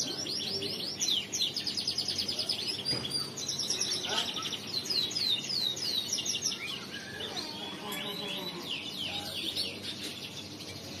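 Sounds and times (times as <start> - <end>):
canary singing: 0.0 - 11.0.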